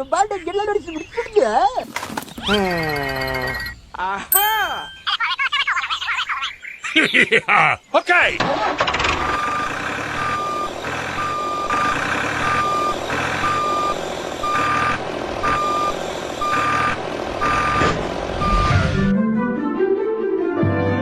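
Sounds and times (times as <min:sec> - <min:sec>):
vehicle motor running: 0:08.8 - 0:18.7
reversing alarm beeping: 0:09.3 - 0:19.0.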